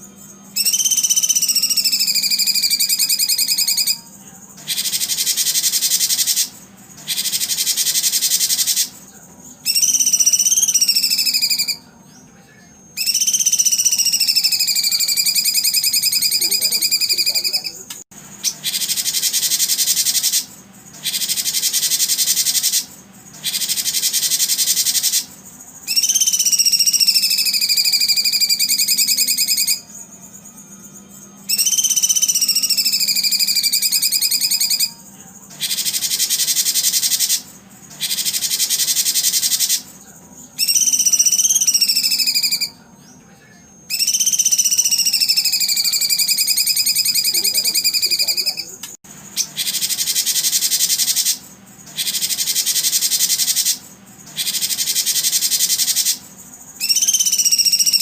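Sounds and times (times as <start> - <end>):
songbird buzzing trills: 0.0 - 11.9, 13.0 - 43.2, 43.9 - 58.0
bird whistled note: 0.5 - 4.0, 13.0 - 17.7, 31.4 - 35.0, 40.6 - 42.8, 43.9 - 48.6, 56.8 - 58.0.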